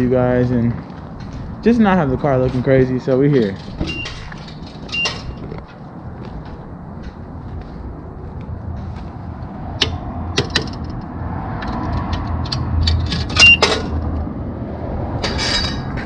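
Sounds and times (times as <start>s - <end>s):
short electronic beep: 13.4s - 13.7s.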